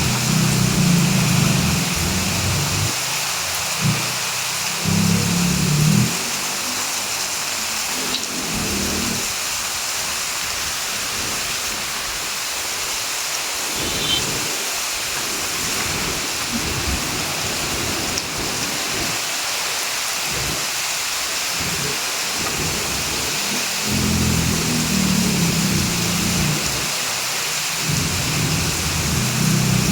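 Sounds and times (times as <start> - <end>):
low rumbling: 0.0 - 3.0
heavy rain falling: 0.0 - 29.9.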